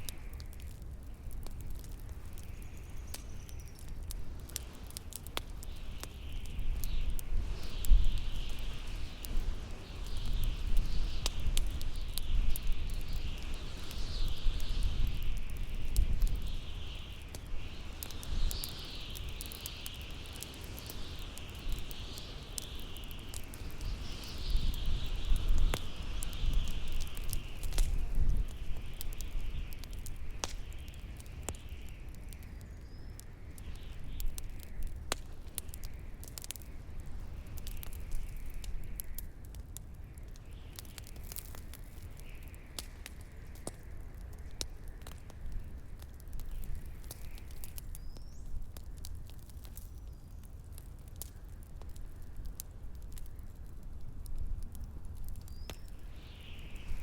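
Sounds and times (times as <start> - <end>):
wind rumbling: 0.0 - 32.4
bonfire crackling and popping: 0.0 - 57.0.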